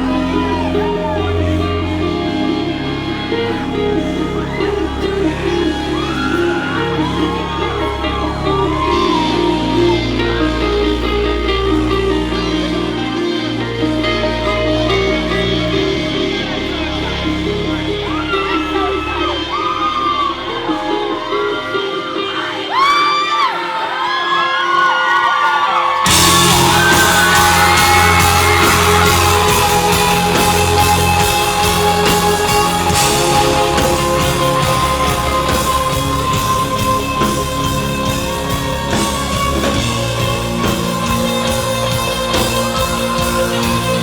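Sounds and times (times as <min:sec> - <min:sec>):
live rock band playing: 0:00.0 - 0:23.4, 0:25.8 - 0:44.0
crowd yelling and whooping: 0:00.0 - 0:44.0
heavy drums: 0:26.1 - 0:44.0.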